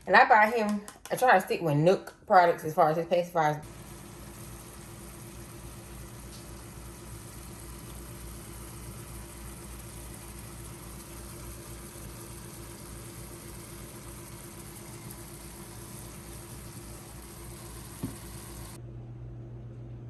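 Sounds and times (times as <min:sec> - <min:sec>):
low mechanical hum with hiss: 0:03.4 - 0:20.0.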